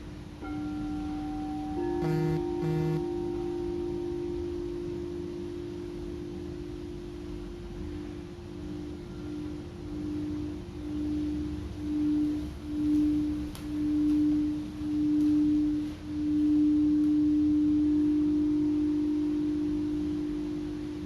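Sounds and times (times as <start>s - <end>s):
faint higher bowl tone: 0.0s - 21.0s
singing bowl ringing: 0.0s - 21.0s.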